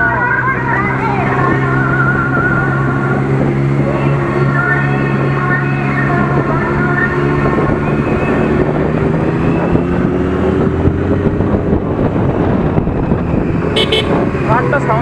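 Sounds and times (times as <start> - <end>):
motorcycle engine cruising: 0.0 - 15.0
wind on microphone: 0.0 - 15.0.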